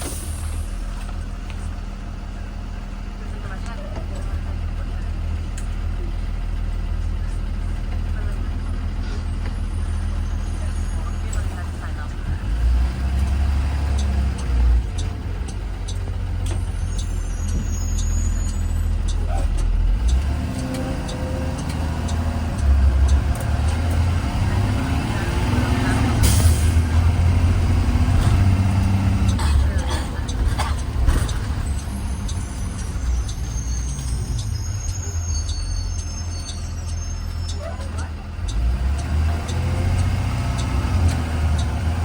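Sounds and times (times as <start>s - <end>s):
bus engine and road rumble: 0.0s - 42.0s
squeaks and ticks from bus body: 6.5s - 42.0s
thin high squeal: 31.6s - 37.8s.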